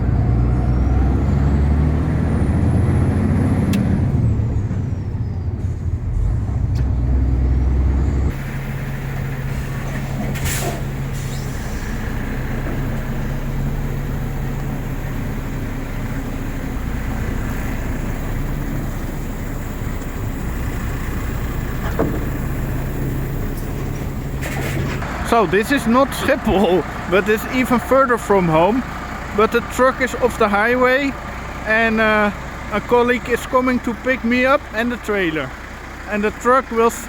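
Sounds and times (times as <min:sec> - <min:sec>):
truck diesel engine running: 0:00.0 - 0:37.0.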